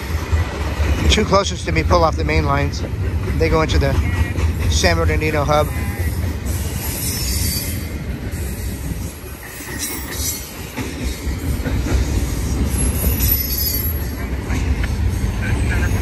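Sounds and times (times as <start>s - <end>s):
freight train rumbling past: 0.0s - 16.0s
high-pitched wheel squeal: 6.6s - 7.9s, 12.7s - 14.2s.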